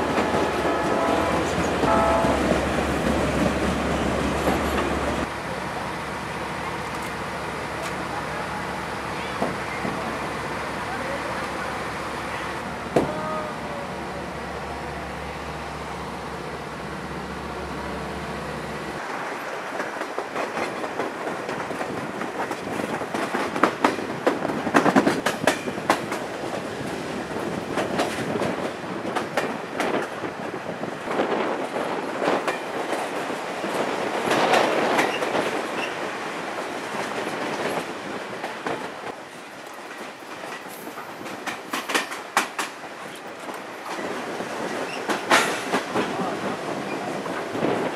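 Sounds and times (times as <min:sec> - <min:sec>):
train cars rattling: 0:00.0 - 0:47.9
train engine humming: 0:00.0 - 0:47.9
train wheels clacking: 0:19.8 - 0:30.3, 0:37.0 - 0:47.9.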